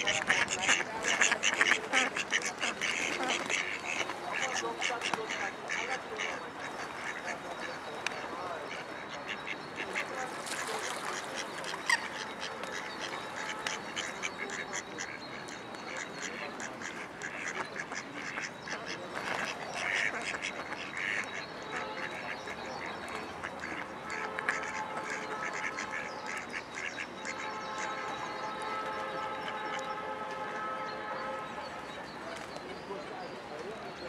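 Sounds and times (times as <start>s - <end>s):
duck quacking: 0.0s - 7.8s, 8.7s - 28.1s.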